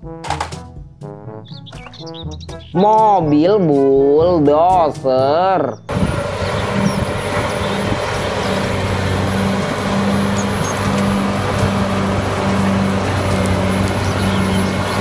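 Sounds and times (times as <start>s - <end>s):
bulldozer diesel engine under load: 5.9s - 15.0s.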